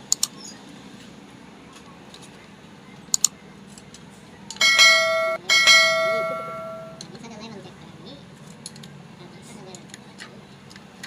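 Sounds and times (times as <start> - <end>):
bell-like metallic ringing: 4.6 - 7.0.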